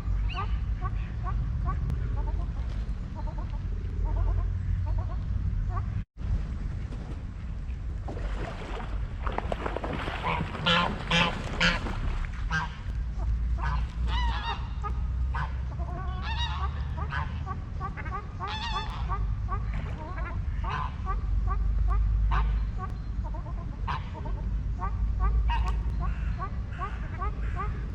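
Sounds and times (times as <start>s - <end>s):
steady low rumble: 0.0s - 27.9s
geese honking: 10.2s - 27.9s.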